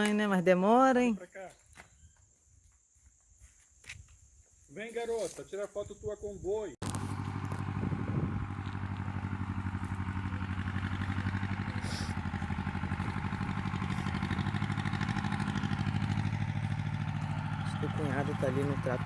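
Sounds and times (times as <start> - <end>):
tractor engine chugging: 6.8 - 19.0.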